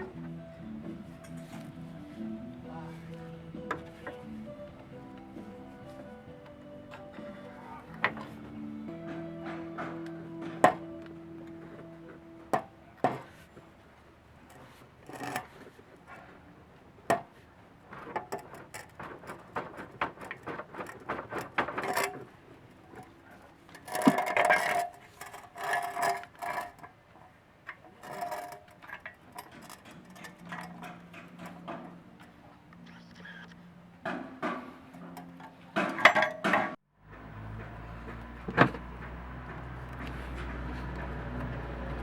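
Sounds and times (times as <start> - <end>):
ringing metal clatter: 18.2 - 27.0, 27.8 - 32.4
metal tools clinking: 22.8 - 26.9, 27.9 - 32.3.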